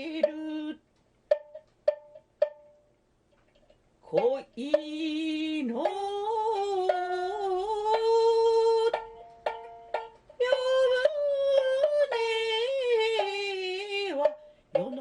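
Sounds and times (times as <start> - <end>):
sharp plucked shamisen notes: 1.3 - 2.9, 4.2 - 15.0
shamisen melody with vibrato: 7.9 - 12.2.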